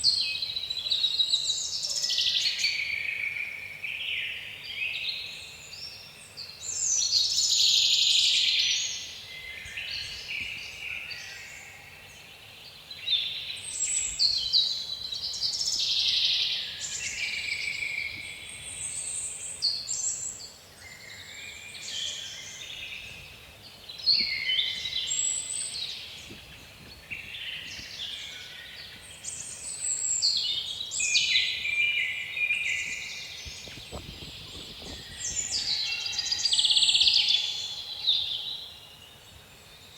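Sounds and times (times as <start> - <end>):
songbirds chirping and trilling: 0.0 - 39.9
faint wind rush: 32.9 - 35.8.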